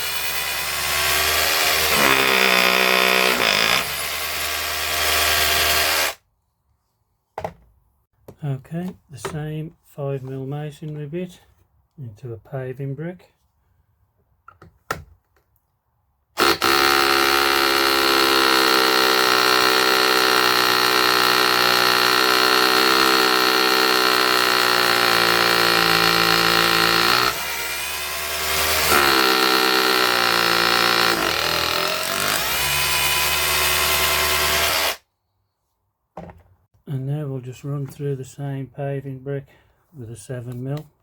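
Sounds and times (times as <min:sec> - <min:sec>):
hammer drill drilling into brick: 0:00.0 - 0:06.2, 0:16.4 - 0:35.0.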